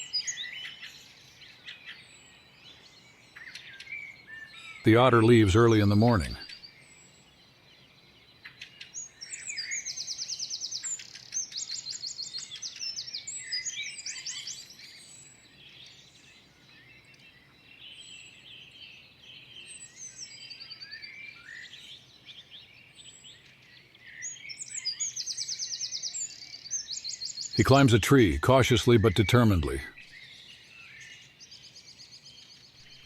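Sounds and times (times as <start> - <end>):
thin high bird calls and chirps: 0.0 - 7.3, 8.0 - 28.4, 29.0 - 33.0
songbirds trilling: 0.0 - 33.0.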